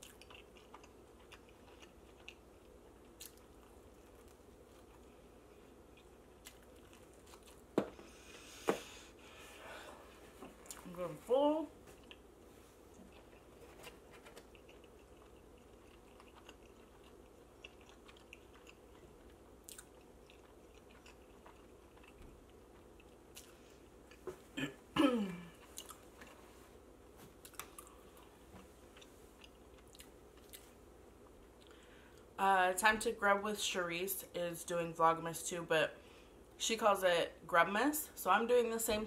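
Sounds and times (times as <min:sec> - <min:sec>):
person chewing food: 0:00.0 - 0:09.3, 0:11.8 - 0:24.4, 0:25.5 - 0:26.5, 0:27.2 - 0:32.3.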